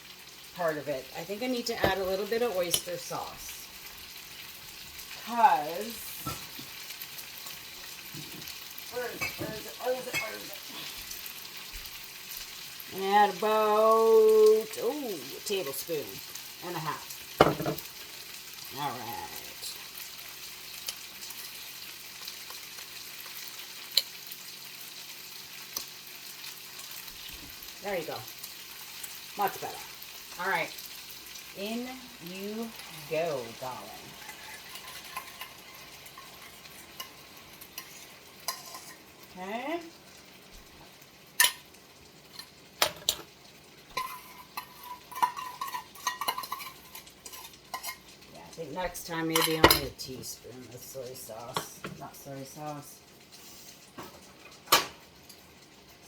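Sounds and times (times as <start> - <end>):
food sizzling in a wok: 0.0 - 56.0
utensil scraping a wok: 32.7 - 39.2, 43.9 - 48.2.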